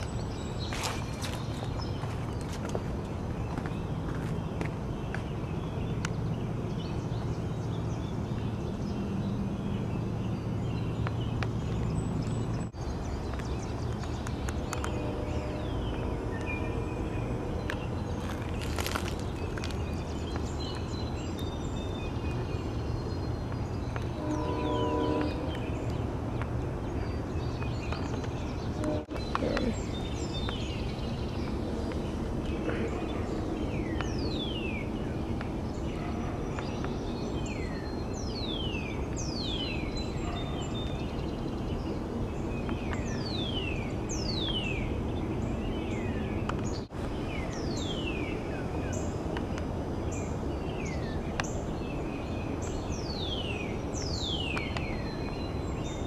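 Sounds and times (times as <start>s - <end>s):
outdoor background rumble: 0.0s - 56.0s
birds whistling: 6.9s - 26.0s.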